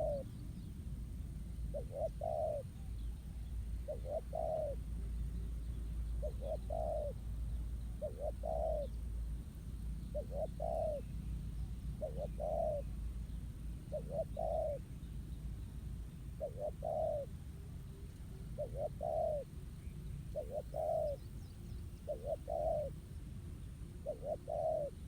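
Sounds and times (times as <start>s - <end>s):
dove cooing: 0.0s - 0.4s, 1.6s - 5.5s, 6.1s - 7.3s, 7.9s - 9.0s, 10.1s - 11.1s, 11.9s - 13.0s, 13.9s - 14.9s, 16.4s - 19.6s, 20.3s - 21.3s, 21.9s - 23.0s, 24.0s - 25.0s.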